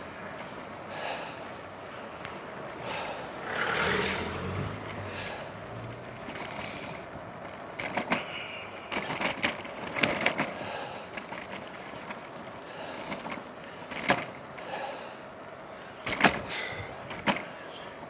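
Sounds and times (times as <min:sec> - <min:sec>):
bicycle rattling over bumps: 0:00.0 - 0:18.0
tyre and wind noise: 0:00.0 - 0:18.0.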